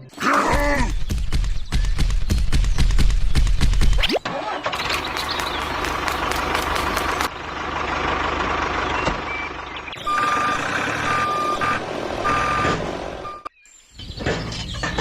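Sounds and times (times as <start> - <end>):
rumbling engine: 2.0 - 13.5
reversing alarm beeps: 9.3 - 13.5.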